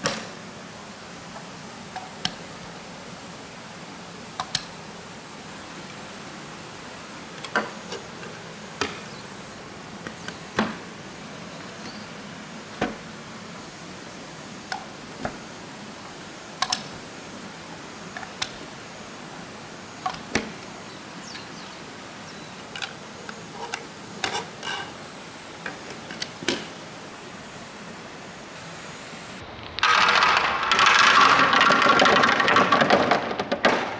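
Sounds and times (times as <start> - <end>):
running water hiss: 0.0 - 33.4
marbles clicking down plastic slide: 29.8 - 33.6.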